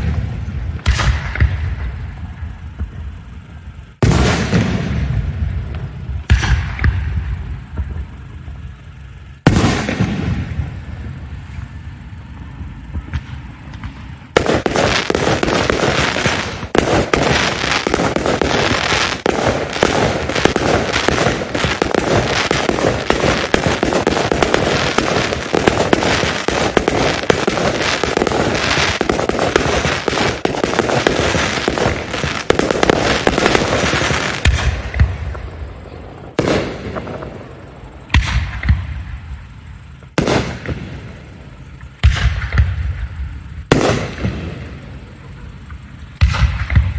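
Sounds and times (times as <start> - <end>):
rapid firework bangs: 0.0 - 46.9
firework boom: 4.0 - 8.4, 9.4 - 12.0.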